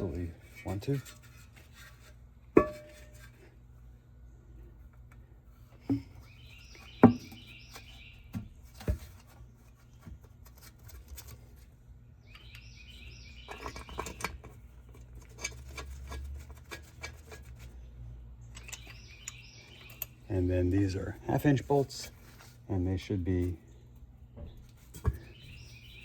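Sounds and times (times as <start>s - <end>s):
birds chirping: 4.3s - 8.8s, 12.1s - 15.0s, 17.7s - 26.0s.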